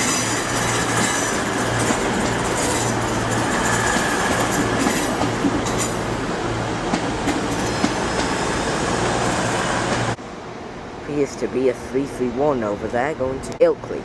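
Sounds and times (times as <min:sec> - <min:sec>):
wheel-on-rail noise: 0:00.0 - 0:10.2.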